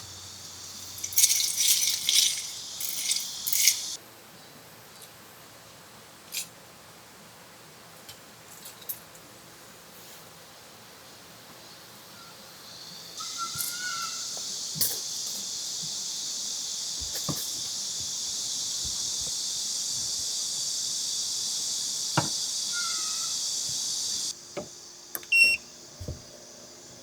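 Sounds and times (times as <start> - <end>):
cicadas buzzing: 0.0 - 4.0, 10.5 - 27.0
short high beeps: 25.3 - 25.6.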